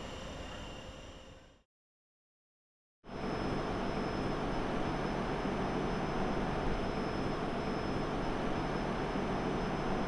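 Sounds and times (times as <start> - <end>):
thin high whine: 0.0 - 1.6.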